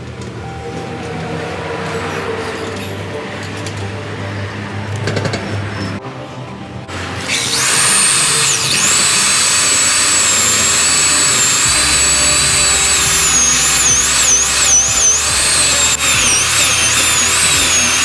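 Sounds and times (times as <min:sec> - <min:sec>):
power tool motor whining: 0:06.9 - 0:18.0.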